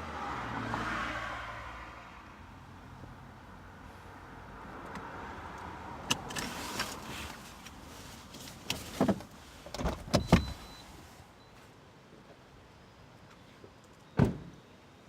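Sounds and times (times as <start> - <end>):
car noise: 0.0 - 11.3
car doors thudding shut: 14.2 - 14.6.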